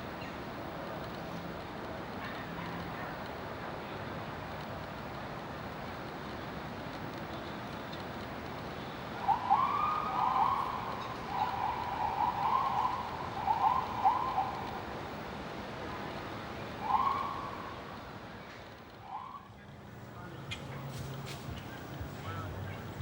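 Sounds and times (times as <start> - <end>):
city traffic hum: 0.0 - 23.0
bird calling: 9.2 - 14.8.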